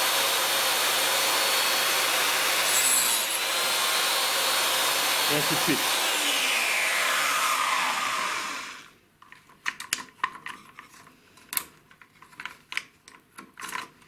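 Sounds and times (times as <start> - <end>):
grinding wheel spinning down: 4.8 - 8.9.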